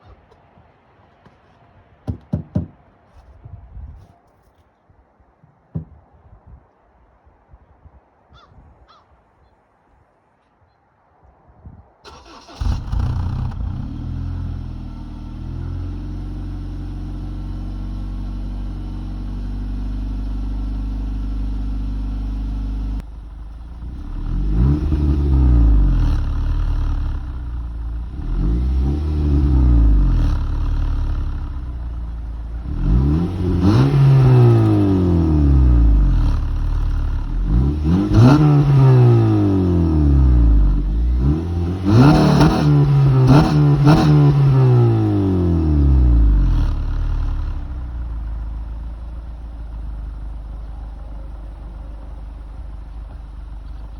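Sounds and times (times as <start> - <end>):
car engine revving: 12.1 - 53.9
car engine starting: 12.1 - 53.9
car engine idling: 12.2 - 42.2, 45.1 - 53.9.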